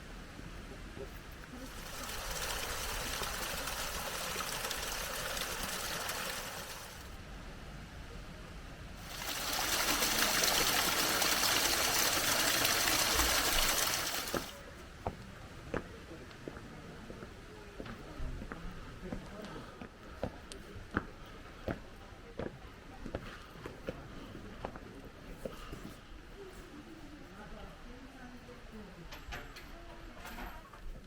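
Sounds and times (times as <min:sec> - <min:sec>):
running water rushing: 0:01.4 - 0:07.2, 0:09.0 - 0:14.6.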